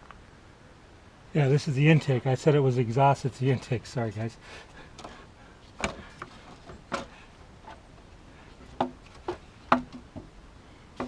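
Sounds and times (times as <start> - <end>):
engine parts clicking and knocking: 4.6 - 11.0.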